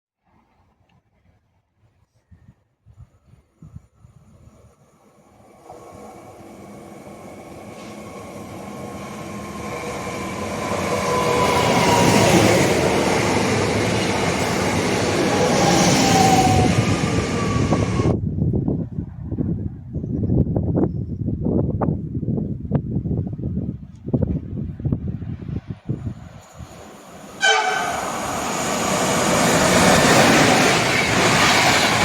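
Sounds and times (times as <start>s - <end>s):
train rumble and hiss: 4.3s - 18.2s, 26.2s - 32.0s.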